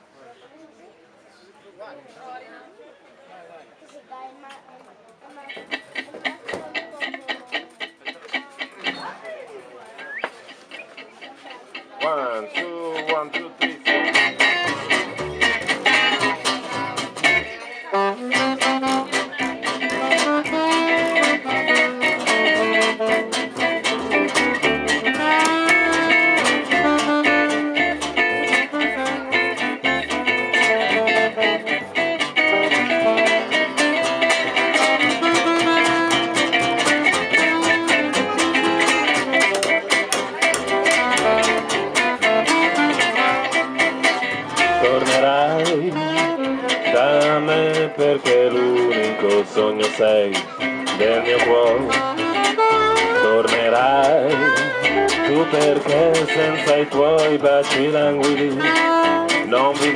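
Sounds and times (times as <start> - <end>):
gypsy jazz band playing: 5.4 - 59.9
plucked acoustic guitars: 5.4 - 59.9.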